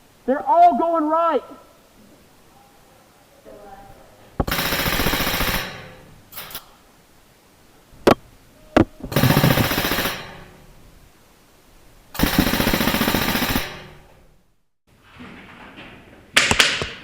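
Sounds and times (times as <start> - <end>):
airsoft gun full-auto fire: 4.4 - 6.6, 9.1 - 10.6, 12.2 - 14.1.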